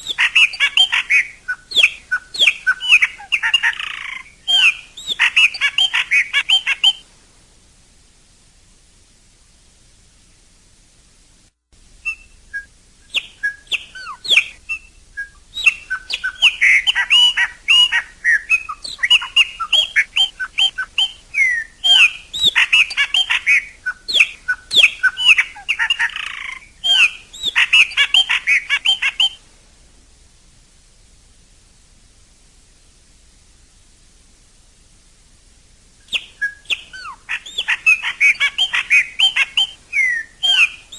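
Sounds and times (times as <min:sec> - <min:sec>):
blackbird singing: 0:00.0 - 0:07.0, 0:12.0 - 0:29.4, 0:36.0 - 0:40.9.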